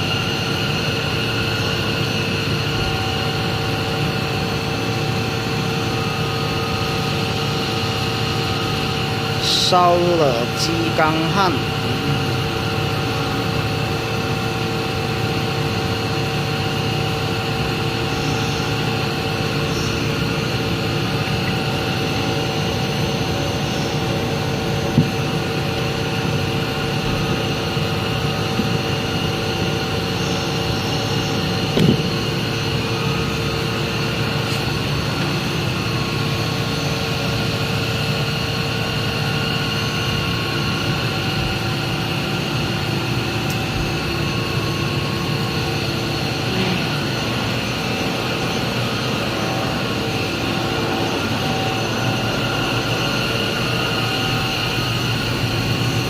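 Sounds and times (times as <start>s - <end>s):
milling machine humming: 0.0s - 56.0s
brief knock: 31.8s - 32.1s.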